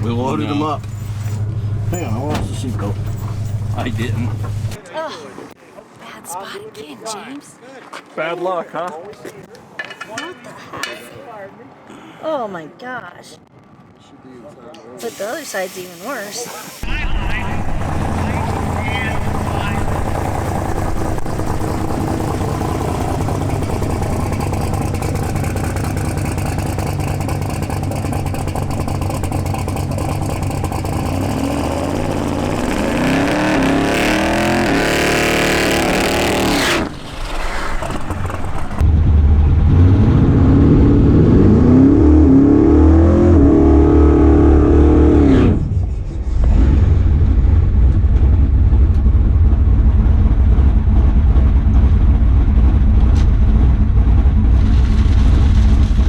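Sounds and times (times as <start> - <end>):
drag car engine revving: 0.0 - 4.8, 16.8 - 56.0.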